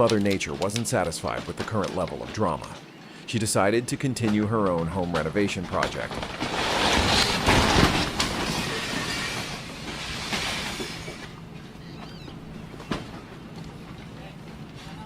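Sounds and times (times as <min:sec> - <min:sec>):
landslide rumbling and crashing: 0:00.0 - 0:11.3.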